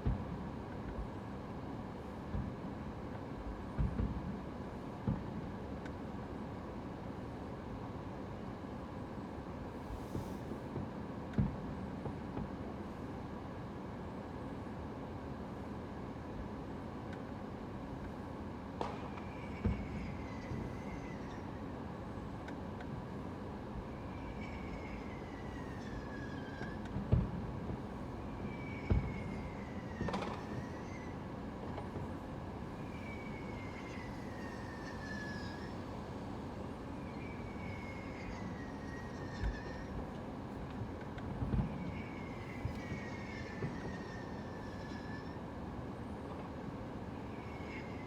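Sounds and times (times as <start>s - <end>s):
fireworks thumps and cracks: 3.8s - 4.2s, 18.8s - 19.8s, 27.0s - 27.8s, 30.0s - 30.4s.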